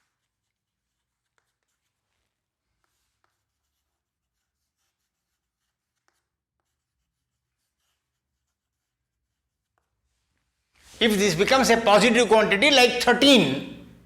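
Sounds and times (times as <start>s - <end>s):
pen scratching while writing: 0.0s - 10.1s.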